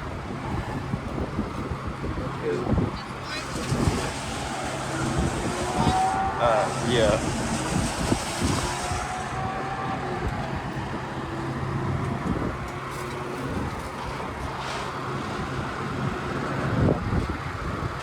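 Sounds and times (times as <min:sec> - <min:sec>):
vehicle engines idling: 0:00.0 - 0:18.0.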